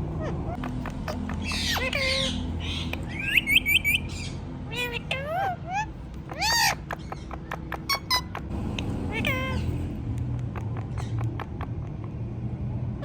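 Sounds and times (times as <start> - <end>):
parrot imitating a cat's meow: 9.1 - 9.7.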